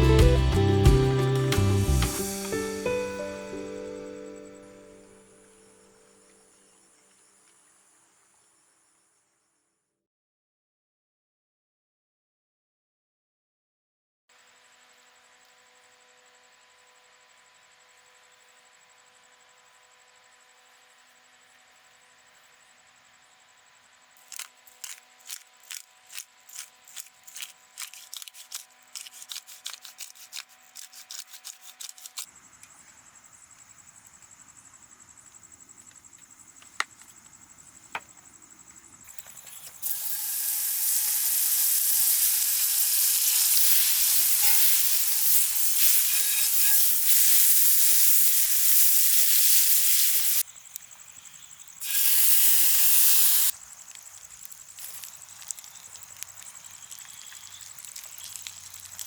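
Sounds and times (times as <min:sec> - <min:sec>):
food sizzling on a hot pan: 0:39.3 - 0:50.5, 0:51.7 - 0:59.0.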